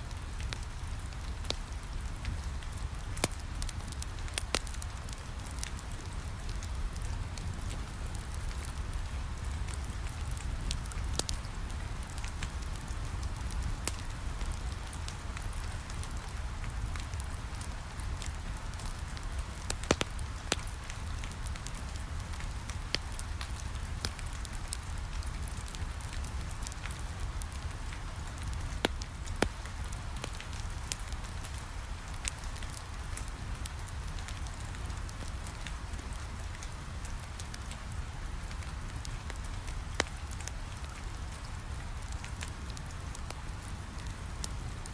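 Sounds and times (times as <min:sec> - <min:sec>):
rain pattering on a window: 0:00.0 - 0:44.9
wood fire crackling: 0:00.0 - 0:44.9.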